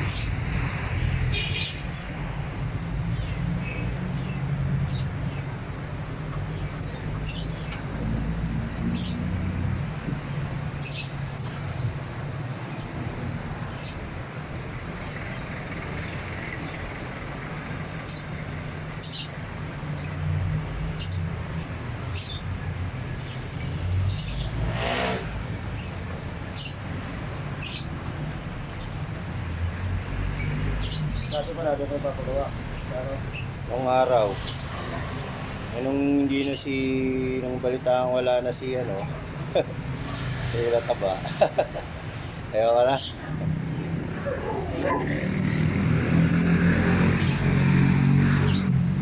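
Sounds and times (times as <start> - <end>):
bird chirping: 29.7 - 32.0.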